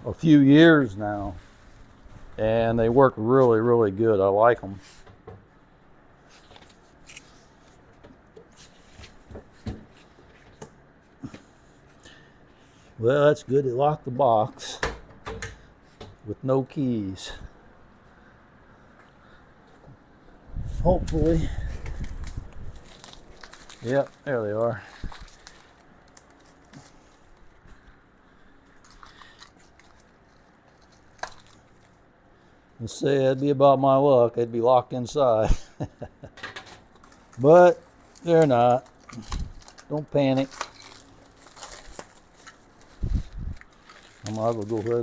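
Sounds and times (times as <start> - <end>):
clicks and rustles of packaging: 21.0 - 27.6, 28.6 - 32.0, 36.5 - 45.0.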